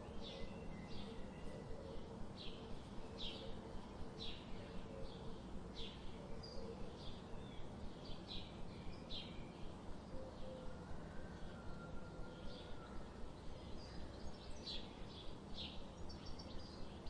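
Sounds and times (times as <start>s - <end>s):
low background hum: 0.0s - 17.0s
small birds chirping: 13.4s - 17.0s.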